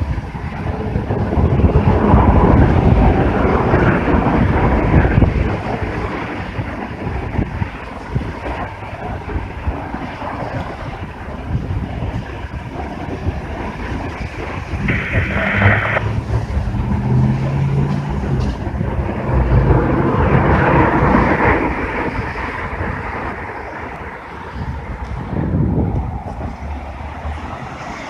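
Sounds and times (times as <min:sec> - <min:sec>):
train passing with low rumble: 0:00.0 - 0:28.0
wind buffeting microphone: 0:00.0 - 0:28.0.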